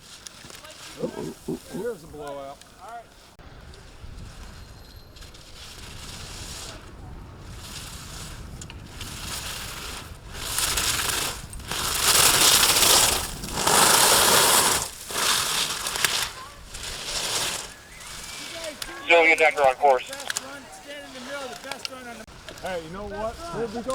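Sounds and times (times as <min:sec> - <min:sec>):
ski edges scraping icy snow: 0:03.9 - 0:19.5.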